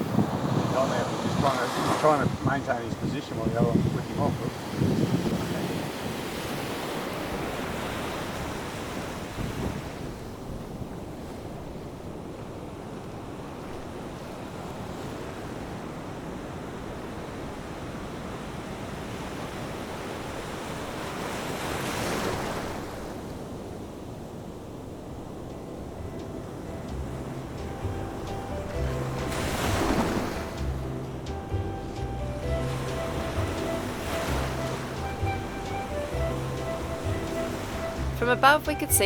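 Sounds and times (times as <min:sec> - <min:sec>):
wind buffeting microphone: 0:00.0 - 0:19.2
waves breaking on beach: 0:00.0 - 0:31.6, 0:32.2 - 0:39.0.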